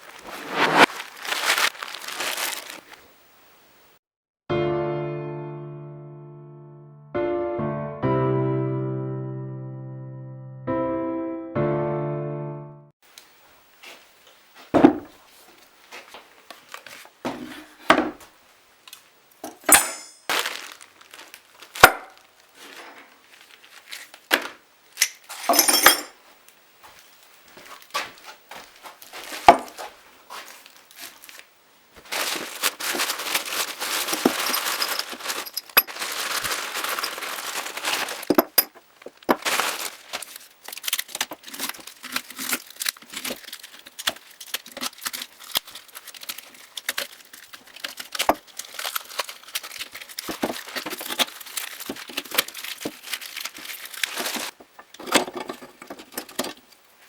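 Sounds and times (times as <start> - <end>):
packaging crinkling and rustling: 0.0 - 3.1, 15.4 - 17.2, 20.2 - 25.6, 26.4 - 56.8
metal parts knocking and clinking: 19.4 - 20.3, 25.0 - 26.2, 34.1 - 36.0, 38.2 - 39.4.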